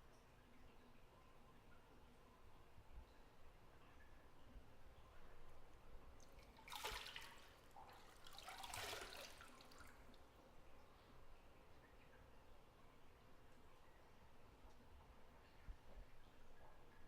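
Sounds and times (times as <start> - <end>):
faint water splashes: 0.1 - 17.0
bathwater sloshing in a tub: 6.2 - 10.4.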